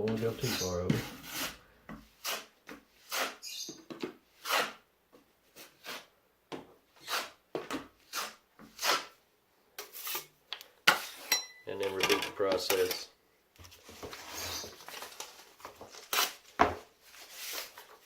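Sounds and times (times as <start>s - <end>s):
drywall knife scraping compound: 0.0s - 6.2s, 6.9s - 9.2s, 9.8s - 11.3s, 13.8s - 14.8s, 16.0s - 16.5s, 17.1s - 18.0s.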